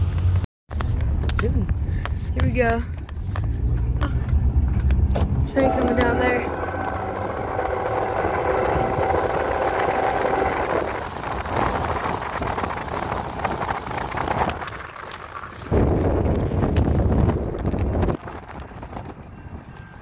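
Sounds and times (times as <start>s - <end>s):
wind buffeting microphone: 0.9s - 20.0s
train rumbling by: 4.4s - 14.6s.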